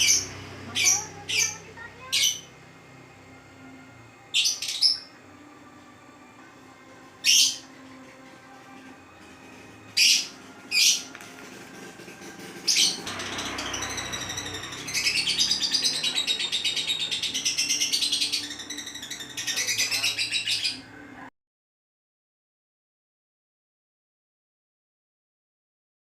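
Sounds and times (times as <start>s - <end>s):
lovebirds chattering: 0.0s - 2.5s, 7.2s - 7.7s, 10.0s - 11.1s, 12.6s - 20.9s
lovebirds chirping: 0.0s - 2.6s, 10.0s - 11.1s, 12.6s - 20.9s.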